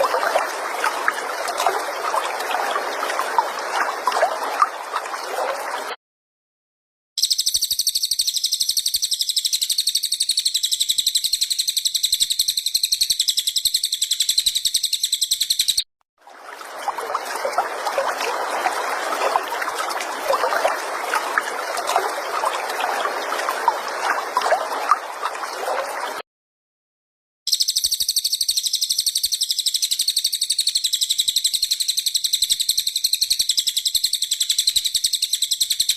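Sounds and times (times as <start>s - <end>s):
high-pitched rapid bird trill: 7.2s - 15.8s, 27.5s - 35.9s.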